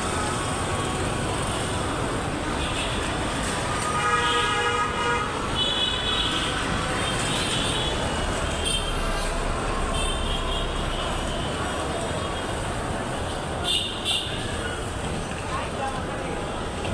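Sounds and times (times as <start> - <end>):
city street traffic: 0.0 - 16.9
vehicle horns: 3.7 - 11.7, 13.6 - 14.4.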